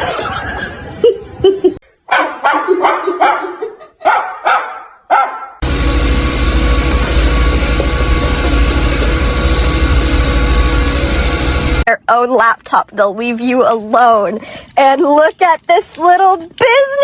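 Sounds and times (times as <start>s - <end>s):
dog yipping: 2.1s - 5.6s
loud noise with low throb: 5.6s - 11.9s.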